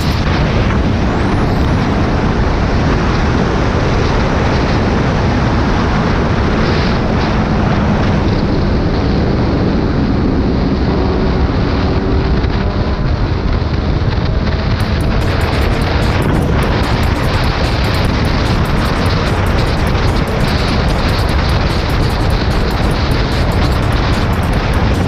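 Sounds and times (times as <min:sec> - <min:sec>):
motorcycle engine running: 0:00.0 - 0:03.0, 0:14.3 - 0:25.0
wind rush on microphone: 0:00.0 - 0:25.0.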